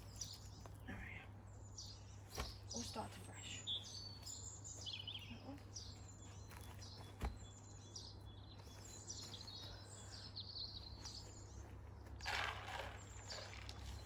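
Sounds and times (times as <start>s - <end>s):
birds chirping and singing: 0.0s - 14.0s.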